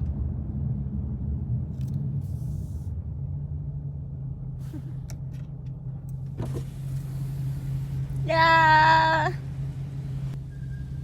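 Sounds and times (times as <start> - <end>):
car engine droning: 0.0 - 11.0
road noise: 0.0 - 11.0.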